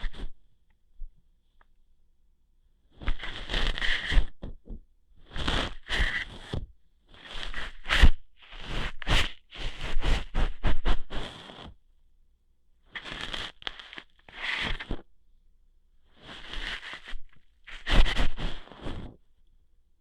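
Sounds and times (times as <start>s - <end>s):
scratchy rubbing and plucking: 3.0s - 11.8s, 13.0s - 15.1s, 16.1s - 19.2s.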